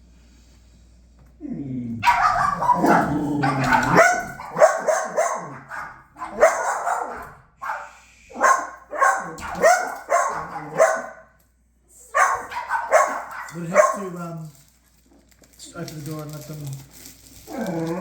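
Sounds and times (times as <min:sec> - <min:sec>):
dog barking: 0:02.0 - 0:11.4, 0:12.1 - 0:14.2.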